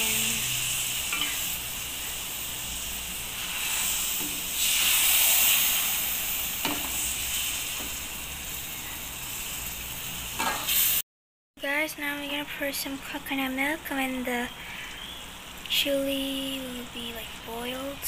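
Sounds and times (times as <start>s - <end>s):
sauce sizzling in a hot pan: 0.0s - 11.0s.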